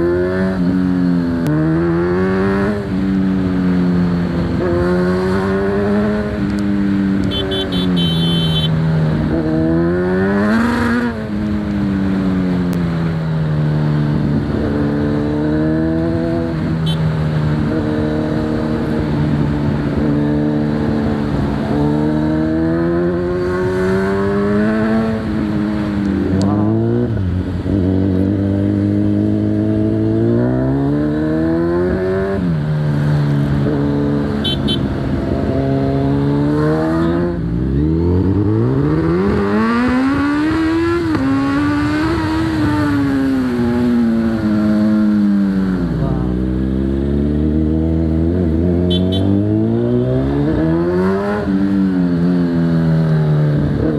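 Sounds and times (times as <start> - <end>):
motorcycle engine accelerating: 0.0 - 53.9.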